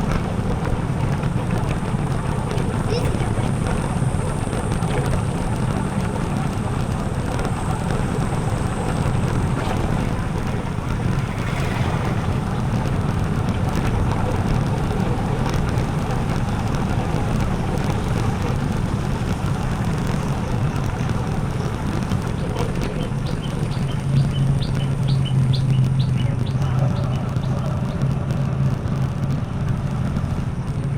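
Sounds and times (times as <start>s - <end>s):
motorcycle engine running: 0.0s - 30.9s
wind on microphone: 0.0s - 30.9s.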